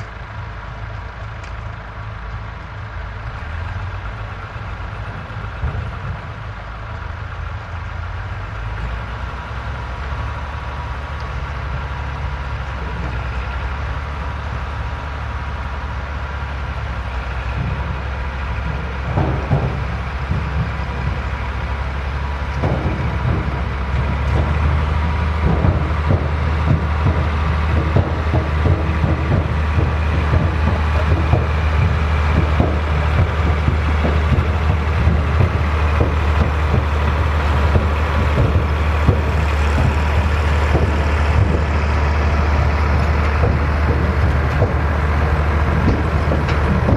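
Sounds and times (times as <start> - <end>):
tractor engine running: 0.0 - 46.9
short clattering knocks: 17.3 - 46.9.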